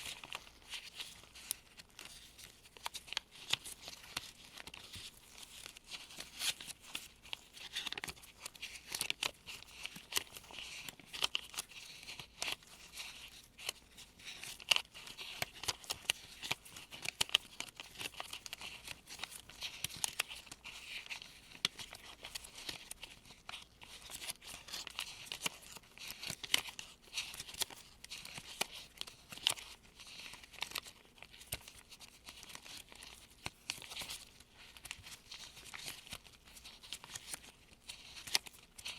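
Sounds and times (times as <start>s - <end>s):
paper money crinkling: 0.0s - 38.9s.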